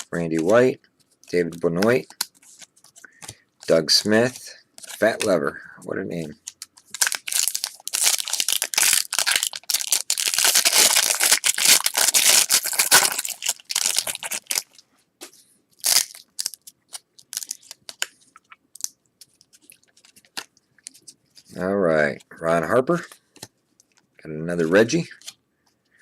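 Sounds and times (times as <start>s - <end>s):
cards rustling and ticking: 0.0s - 21.6s, 22.9s - 25.7s
wrapper tearing and crinkling: 6.8s - 14.8s, 15.8s - 18.1s.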